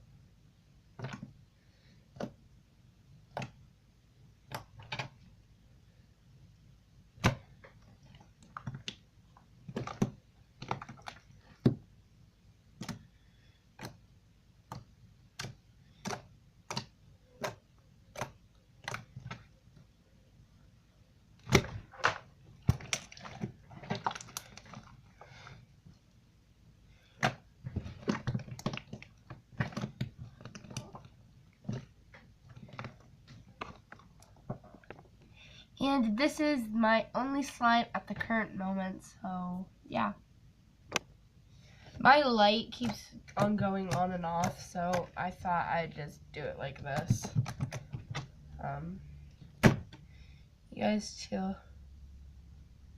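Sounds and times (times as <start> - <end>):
dense crackling of slime: 7.2 - 12.0, 21.3 - 26.1, 26.9 - 35.3.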